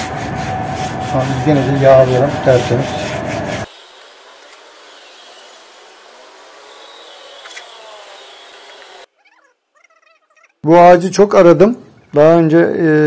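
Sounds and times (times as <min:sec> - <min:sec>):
rubbing on wood: 0:00.0 - 0:03.7.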